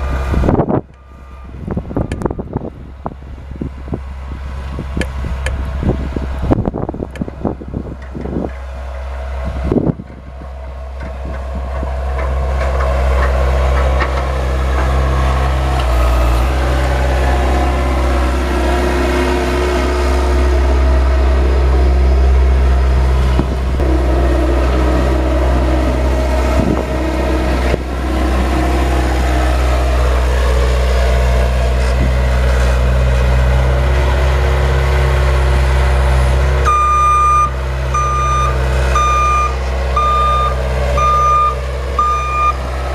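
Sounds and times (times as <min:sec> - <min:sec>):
vehicle engine running under load: 0:00.0 - 0:42.9
reversing alarm beeping: 0:00.9 - 0:02.6, 0:36.6 - 0:42.6.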